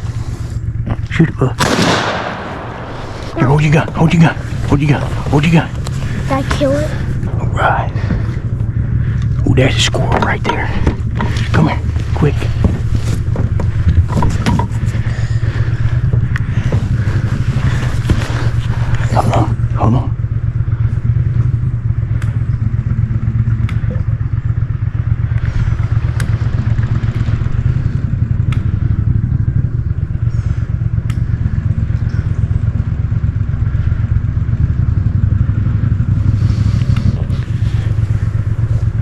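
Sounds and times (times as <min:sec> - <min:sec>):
boat motor running: 0:00.0 - 0:39.0.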